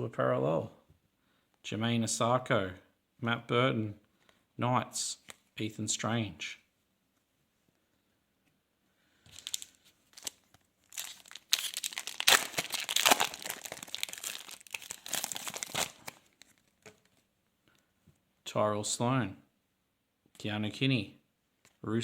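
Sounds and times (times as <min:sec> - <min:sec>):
plastic wrapper crinkling and tearing: 0:09.3 - 0:17.2.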